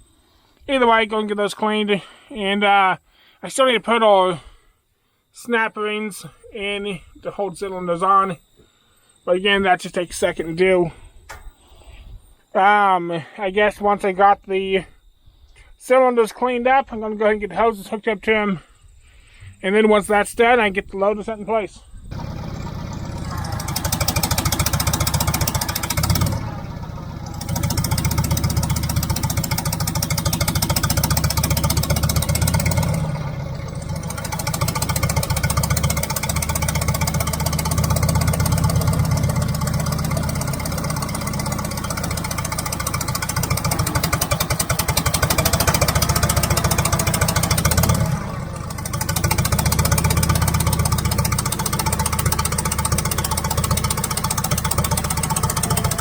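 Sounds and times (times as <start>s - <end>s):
heavy equipment engine idling: 22.1s - 56.0s.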